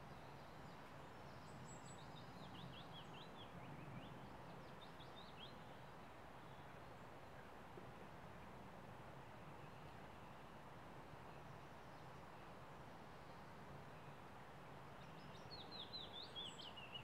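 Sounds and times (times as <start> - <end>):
songbird singing: 0.0 - 7.2, 15.0 - 17.0
low outdoor hiss: 0.0 - 17.0.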